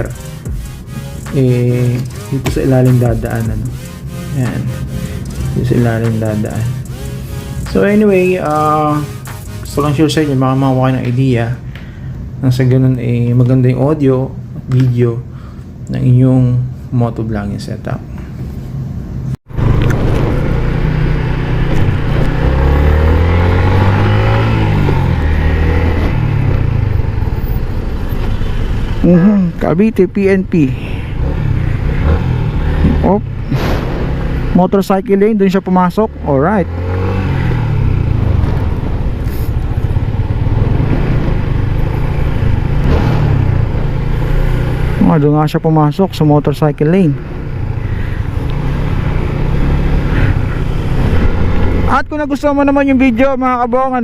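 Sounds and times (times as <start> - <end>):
motorcycle engine drone: 0.0 - 14.6, 19.2 - 54.0
wind rumble: 19.5 - 29.0, 37.1 - 44.9
brief hiss: 33.5 - 34.1.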